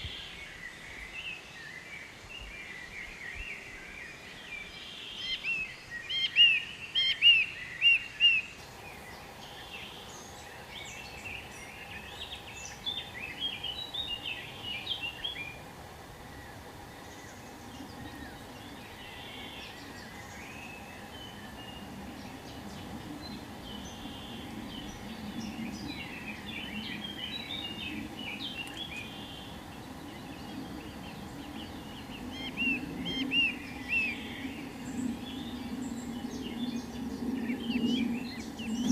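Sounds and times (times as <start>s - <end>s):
birds chirping: 0.0s - 38.9s
outdoor background noise: 0.0s - 38.9s.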